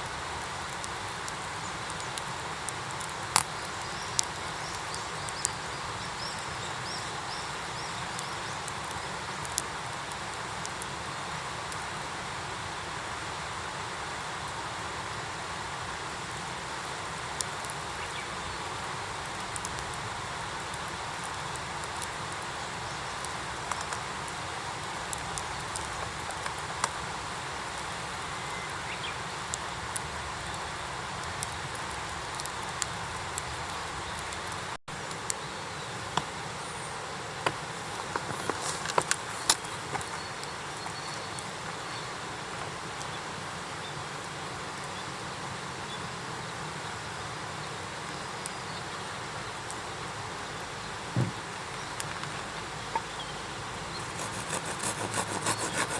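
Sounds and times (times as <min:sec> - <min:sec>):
wood fire crackling and popping: 0:00.0 - 0:12.1, 0:17.2 - 0:43.1
fire sharp pops: 0:00.7 - 0:05.6.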